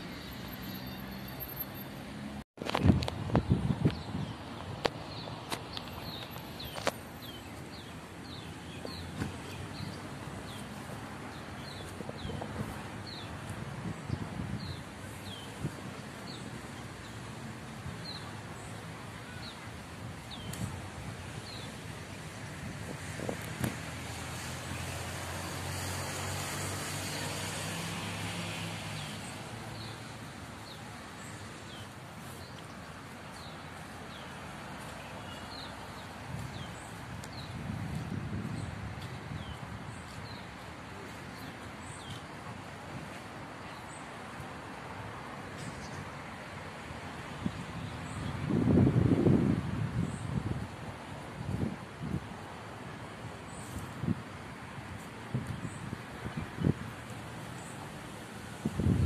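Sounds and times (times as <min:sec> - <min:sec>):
steady outdoor hiss: 0:00.0 - 0:59.0
small birds chirping: 0:03.8 - 0:13.4.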